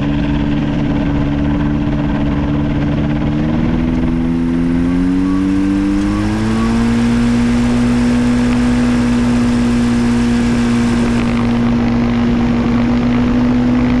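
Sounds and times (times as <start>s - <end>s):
ultralight engine and propeller: 0.0s - 14.0s
air rushing: 5.4s - 11.8s.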